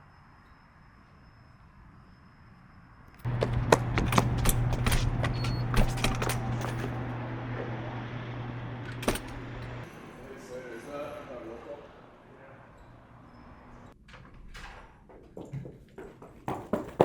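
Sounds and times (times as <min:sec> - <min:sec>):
car engine drone: 0:03.2 - 0:14.0.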